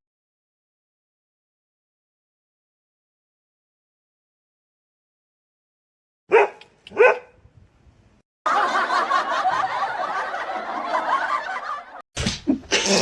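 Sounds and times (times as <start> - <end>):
dense continuous laughter: 8.5 - 13.0.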